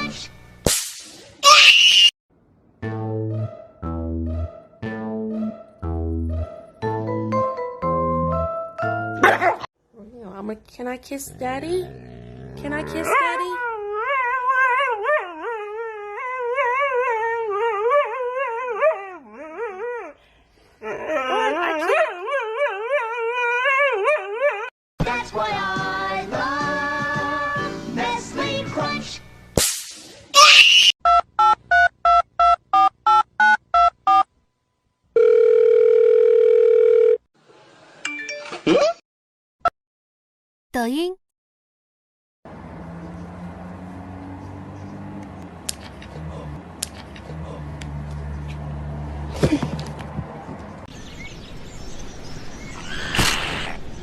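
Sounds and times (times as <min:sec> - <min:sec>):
telephone ringing tone: 0:35.2 - 0:37.2.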